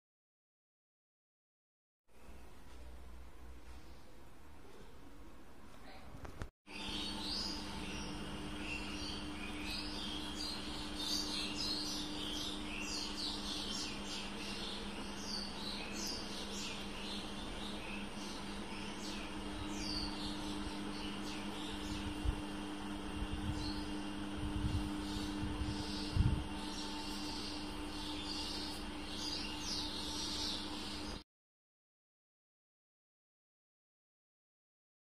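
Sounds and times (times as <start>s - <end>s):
steady low hum: 2.1s - 31.2s
birds chirping: 6.7s - 31.2s.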